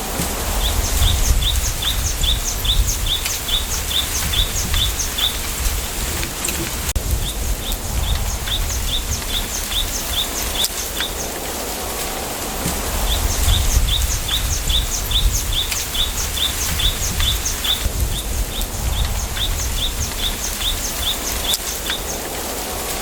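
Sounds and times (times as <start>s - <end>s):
wind rustling through bamboo: 0.0s - 23.0s
small bird calling: 0.4s - 11.4s.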